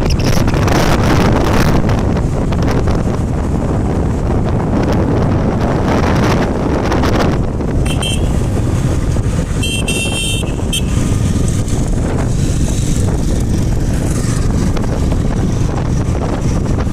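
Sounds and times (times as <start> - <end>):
wind rumble on microphone: 0.0 - 16.9
vehicle horn honking: 7.8 - 8.5, 9.6 - 11.2.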